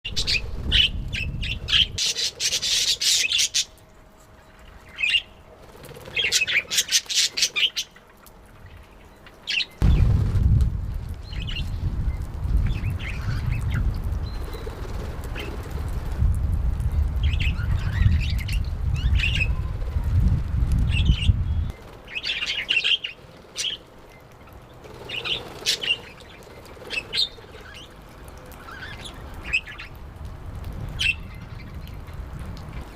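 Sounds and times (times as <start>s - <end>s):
loud low rumble: 9.8s - 12.1s.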